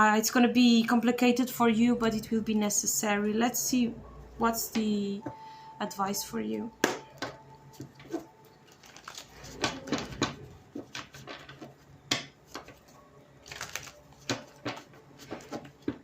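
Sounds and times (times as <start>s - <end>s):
cards being shuffled: 7.2s - 16.0s.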